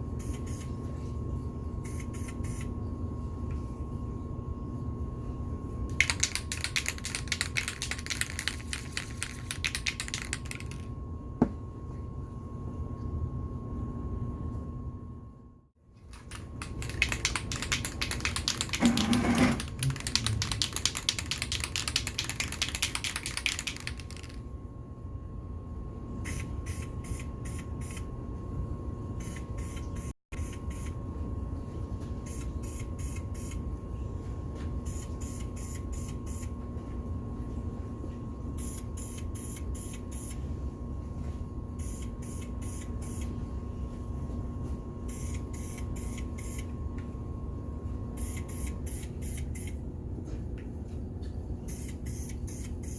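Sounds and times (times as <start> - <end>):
spray can shaking rattle: 5.9 - 10.9, 16.1 - 24.4.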